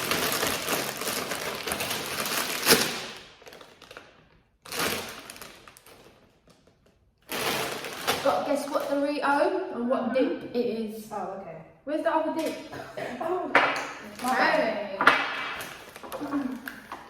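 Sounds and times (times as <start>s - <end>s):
food packaging rustling: 0.0s - 9.1s, 15.4s - 17.0s.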